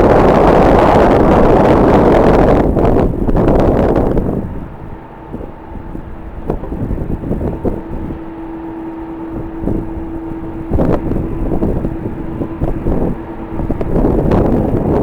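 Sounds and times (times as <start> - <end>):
gusty wind buffeting microphone: 0.0 - 15.0
steady hum: 0.0 - 15.0.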